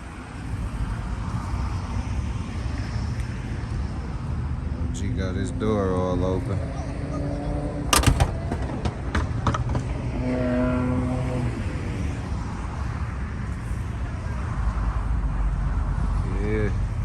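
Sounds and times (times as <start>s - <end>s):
car engines rumbling: 0.0s - 17.0s.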